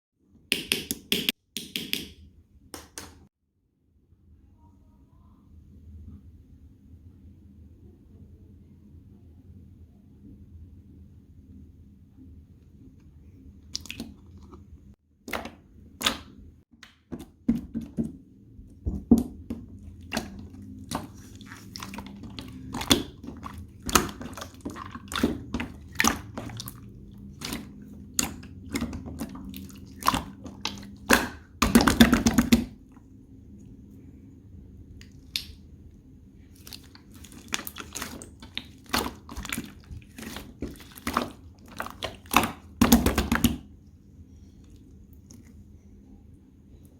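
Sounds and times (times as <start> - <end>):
slime clay squishing: 15.2 - 33.0, 36.4 - 45.9
low steady hum: 15.6 - 46.9.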